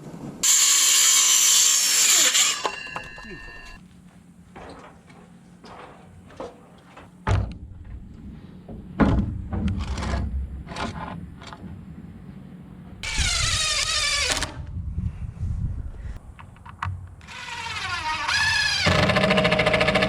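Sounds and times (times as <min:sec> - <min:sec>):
power drill driving screws: 0:17.2 - 0:20.0.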